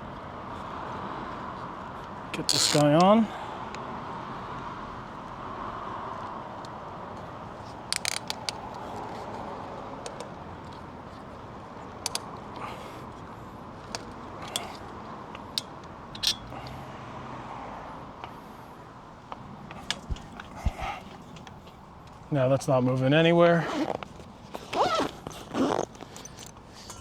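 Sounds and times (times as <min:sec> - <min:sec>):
steady background noise: 0:00.0 - 0:27.0
metallic clicks and clanks: 0:12.0 - 0:12.3, 0:13.9 - 0:16.5, 0:25.8 - 0:27.0.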